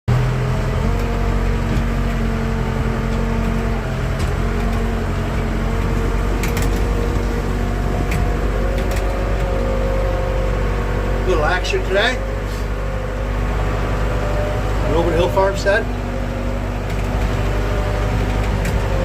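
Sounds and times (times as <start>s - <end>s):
diesel engine running: 0.1s - 19.0s
light clicks and rattles: 3.0s - 9.8s, 16.7s - 19.0s.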